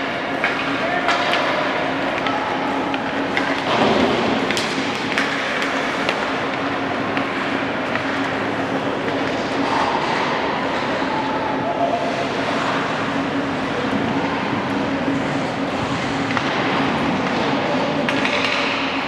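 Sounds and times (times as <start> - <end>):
crowd din: 0.0 - 19.0
sticks and puck clicking on ice: 4.4 - 8.2, 17.2 - 18.9.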